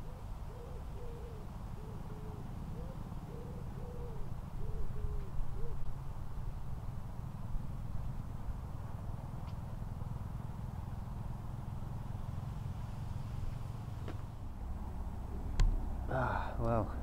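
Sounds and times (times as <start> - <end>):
bird hooting: 0.0 - 5.9.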